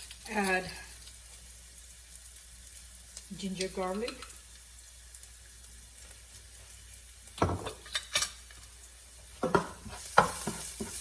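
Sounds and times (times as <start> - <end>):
oil sizzling: 0.0 - 11.0
spoon knocking against a pan: 9.4 - 11.0.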